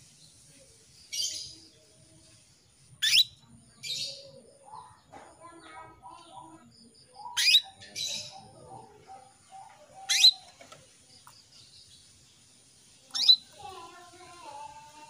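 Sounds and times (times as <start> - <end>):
canary calls: 3.0 - 5.0, 5.7 - 11.0, 13.1 - 13.8.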